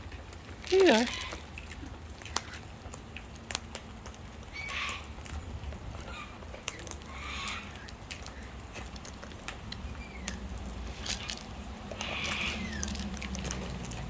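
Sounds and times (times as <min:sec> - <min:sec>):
harsh bird calls: 0:04.5 - 0:05.2, 0:06.0 - 0:08.7, 0:09.8 - 0:13.4.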